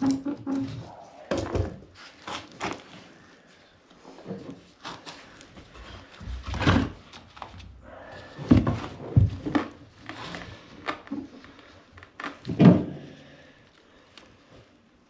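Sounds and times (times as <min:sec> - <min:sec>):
objects thudding and clunking: 0:00.0 - 0:02.0, 0:05.8 - 0:11.4, 0:12.4 - 0:13.2.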